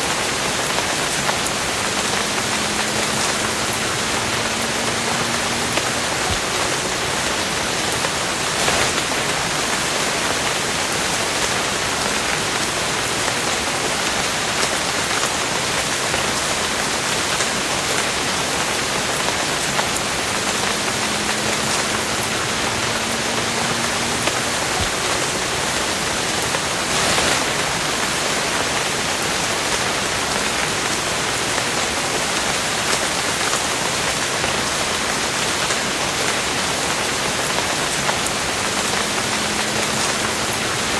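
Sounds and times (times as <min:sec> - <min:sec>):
steady rain hissing: 0:00.0 - 0:40.9
wind gusts: 0:00.0 - 0:40.9.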